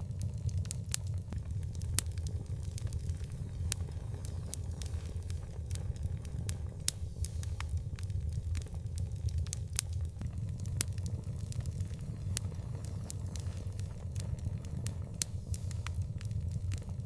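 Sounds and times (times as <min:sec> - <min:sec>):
fire crackles and pops: 0:00.0 - 0:17.0
fire low rumble: 0:00.0 - 0:17.0.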